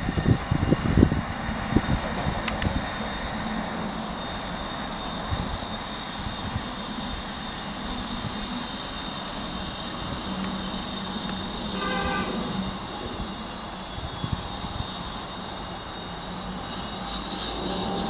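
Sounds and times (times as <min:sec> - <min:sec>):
diesel power car drone: 0:00.0 - 0:18.0
wheel and rail rushing noise: 0:00.0 - 0:18.0.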